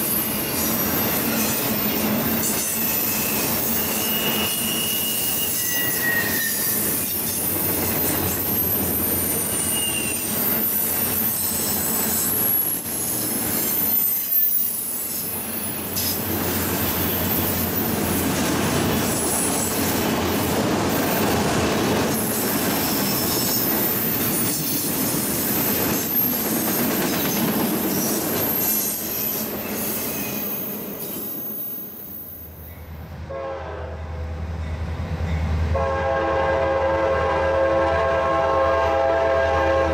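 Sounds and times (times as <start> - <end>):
wheel squeal: 0.0 - 16.2, 16.8 - 17.9, 25.5 - 32.6
railroad cars rumbling past: 0.0 - 39.9
locomotive horn: 33.3 - 34.1, 35.7 - 39.9.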